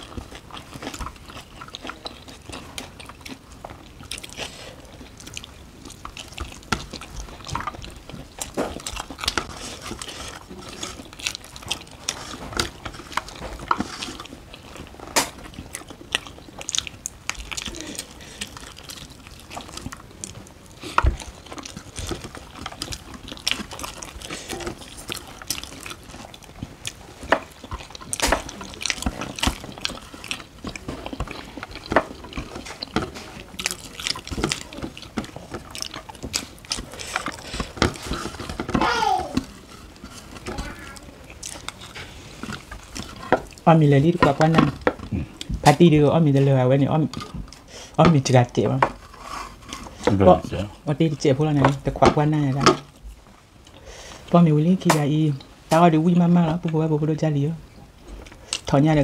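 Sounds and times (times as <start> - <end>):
wet chewing and lip-smacking: 0.0 - 46.0, 57.8 - 59.0.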